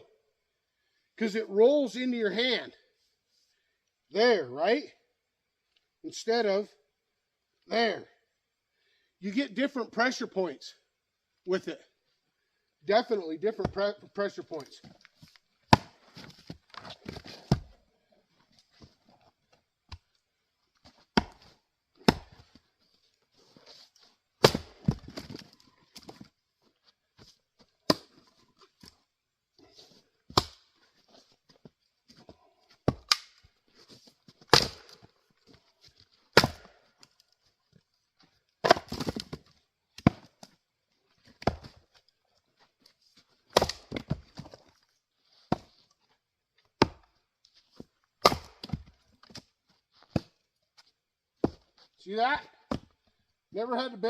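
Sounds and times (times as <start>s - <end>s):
axe chopping wood: 15.7s - 17.8s, 21.1s - 22.6s, 24.4s - 26.2s, 27.9s - 28.3s, 30.3s - 30.7s, 32.8s - 33.4s, 34.4s - 35.1s, 36.3s - 36.9s, 38.6s - 39.4s, 40.0s - 40.5s, 41.4s - 41.8s, 43.5s - 44.6s, 45.5s - 45.8s, 46.8s - 47.1s, 48.2s - 49.4s, 52.7s - 52.9s.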